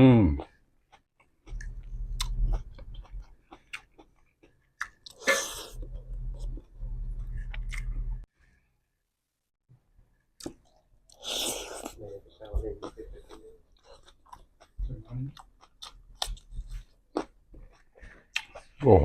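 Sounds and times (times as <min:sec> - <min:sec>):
close-up chewing: 0:10.4 - 0:18.8.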